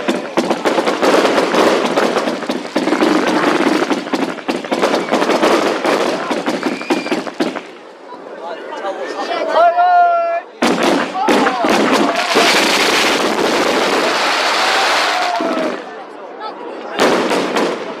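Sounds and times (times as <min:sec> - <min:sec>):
fireworks crackling and popping: 0:00.0 - 0:07.9, 0:10.6 - 0:15.9, 0:17.0 - 0:18.0.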